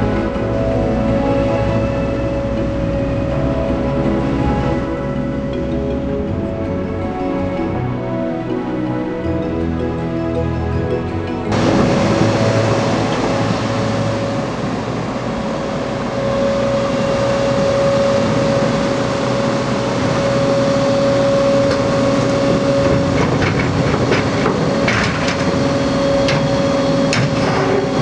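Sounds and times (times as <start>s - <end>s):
excavator machine whine: 0.0s - 28.0s
knocks and clanks: 22.8s - 28.0s.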